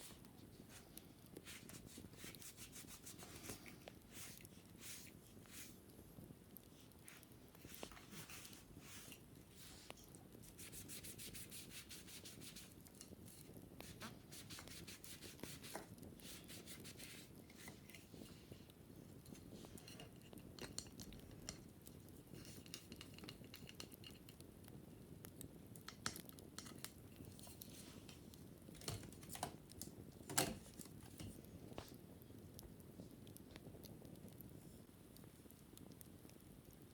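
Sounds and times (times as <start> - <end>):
brushing on wicker basket: 0.0 - 5.8, 6.8 - 18.5.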